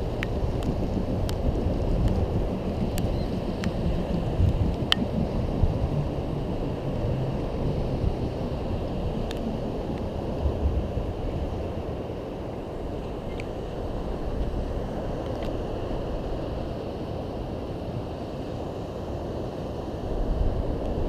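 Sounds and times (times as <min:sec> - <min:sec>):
wind rumble on microphone: 0:00.0 - 0:21.0
faint sharp ticks: 0:00.2 - 0:05.3.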